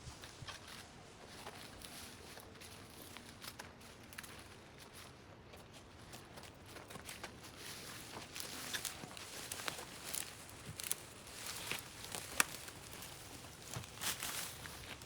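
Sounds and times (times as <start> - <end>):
rustling: 7.6 - 15.0.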